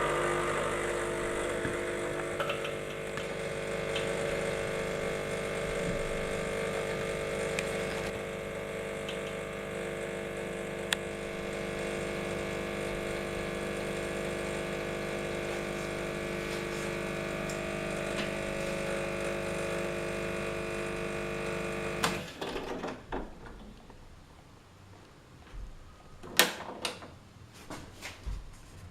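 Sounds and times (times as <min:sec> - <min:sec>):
espresso machine humming: 0:00.0 - 0:22.3.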